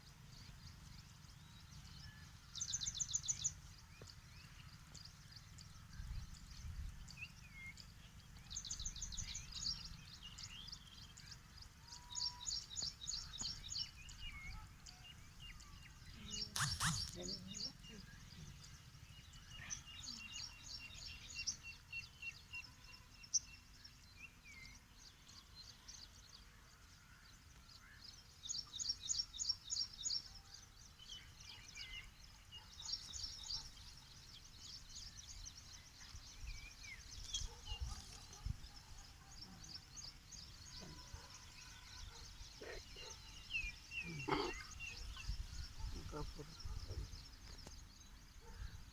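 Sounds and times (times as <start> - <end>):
songbirds trilling and chirping: 0.0 - 48.9
harsh bird call: 16.6 - 17.3.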